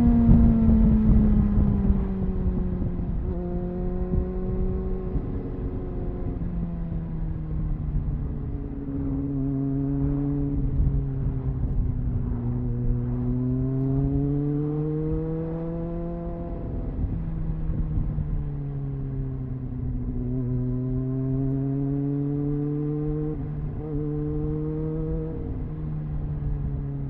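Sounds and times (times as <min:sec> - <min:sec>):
motorcycle engine revving: 0:12.2 - 0:17.2, 0:20.2 - 0:26.1.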